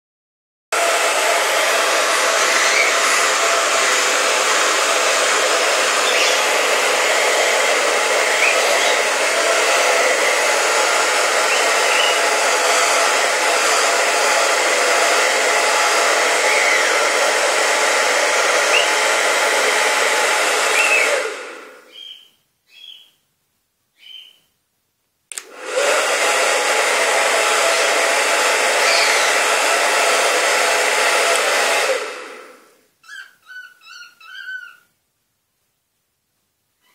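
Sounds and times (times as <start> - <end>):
hair dryer running: 0.7 - 22.2, 25.3 - 32.9
cockatiel whistles: 2.5 - 3.0, 6.0 - 6.5, 8.4 - 9.0, 11.5 - 12.2, 16.5 - 17.0, 18.7 - 19.0, 20.7 - 21.2, 21.9 - 23.2, 24.0 - 24.5, 28.8 - 29.4, 33.0 - 34.9.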